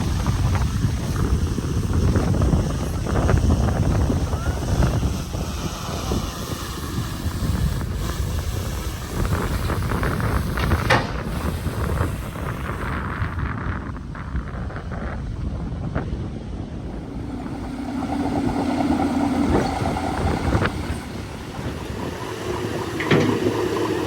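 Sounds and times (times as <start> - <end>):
wind buffeting microphone: 0.0 - 24.0
bulldozer engine rumbling: 16.5 - 24.0.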